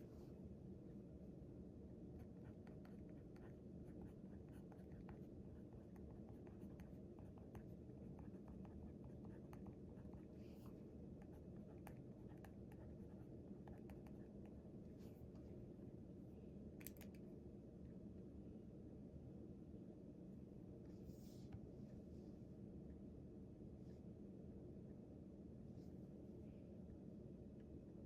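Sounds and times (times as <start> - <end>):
low room hum: 0.0 - 28.0
pen writing on paper: 2.2 - 10.3.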